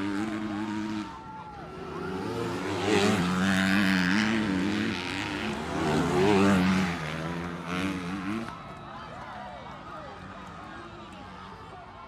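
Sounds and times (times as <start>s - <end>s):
dirt bike engines revving: 0.0s - 8.7s.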